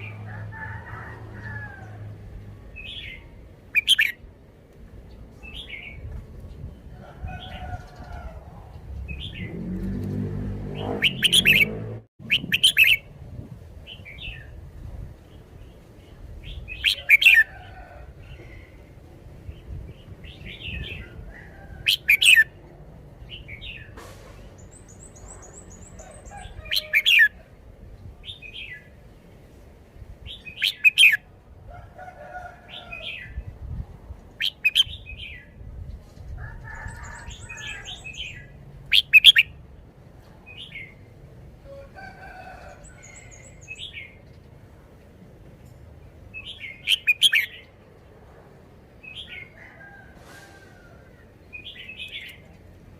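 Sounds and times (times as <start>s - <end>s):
bulbul singing: 10.7s - 13.1s.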